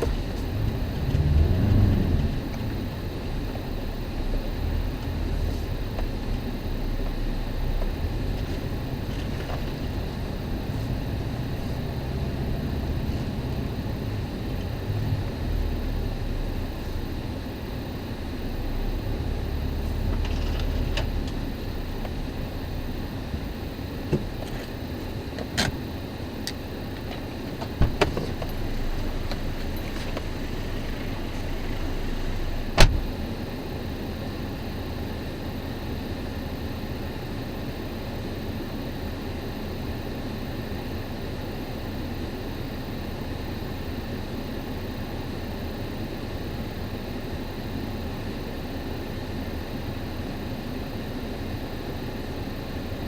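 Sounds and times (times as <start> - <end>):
car rumbling on the move: 0.0 - 33.4.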